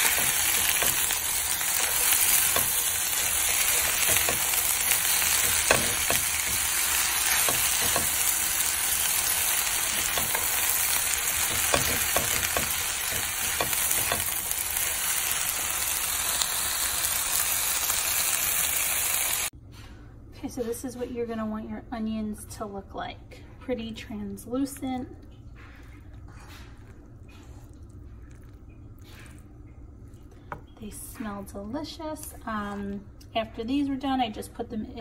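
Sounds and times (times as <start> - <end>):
onions sizzling in a hot pan: 0.0 - 19.5.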